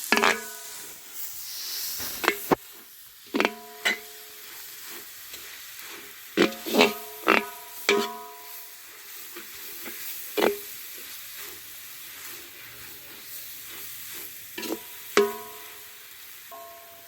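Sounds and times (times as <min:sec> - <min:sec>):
metal spoon clanking on pan: 0:00.0 - 0:00.9, 0:03.3 - 0:04.4, 0:06.4 - 0:08.8, 0:09.4 - 0:10.7, 0:14.6 - 0:15.9, 0:16.5 - 0:17.0
food sizzling in a pan: 0:00.0 - 0:17.0.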